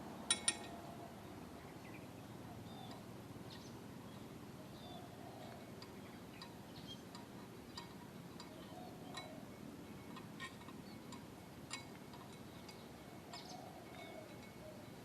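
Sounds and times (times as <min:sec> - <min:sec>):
metallic clinks: 0:00.3 - 0:00.9, 0:05.7 - 0:15.0.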